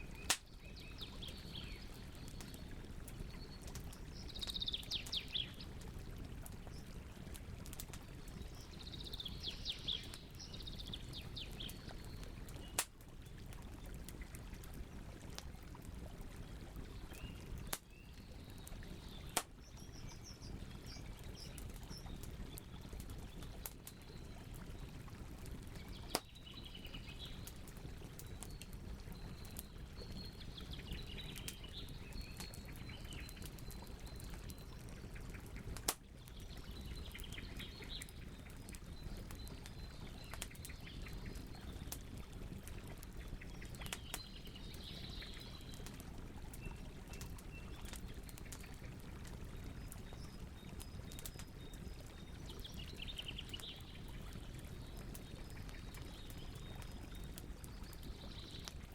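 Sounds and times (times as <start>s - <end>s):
campfire crackling: 0.0s - 58.9s
sharp pops of fire: 0.2s - 0.5s, 12.7s - 12.9s.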